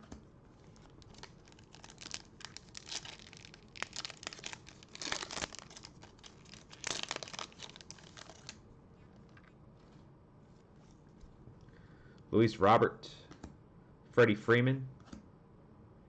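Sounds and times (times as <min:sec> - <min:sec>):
wrappers tearing and crinkling: 0:00.8 - 0:08.6.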